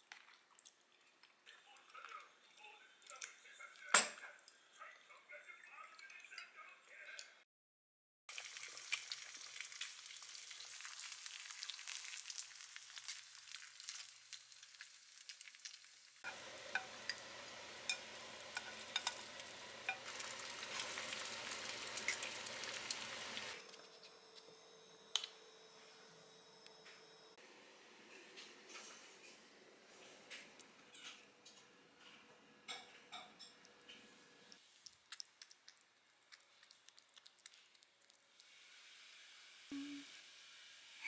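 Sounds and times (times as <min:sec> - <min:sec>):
food sizzling in frying pan: 0:08.3 - 0:23.7.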